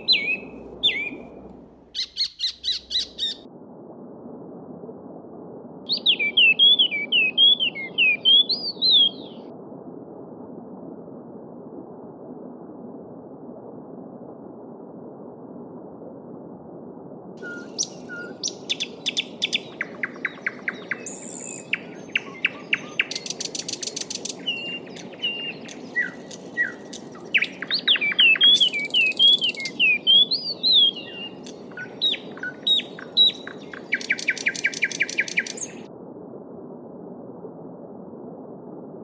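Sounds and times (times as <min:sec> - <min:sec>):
babbling stream: 0:00.0 - 0:02.4
songbirds singing: 0:00.0 - 0:03.4, 0:05.9 - 0:09.4, 0:17.4 - 0:35.8.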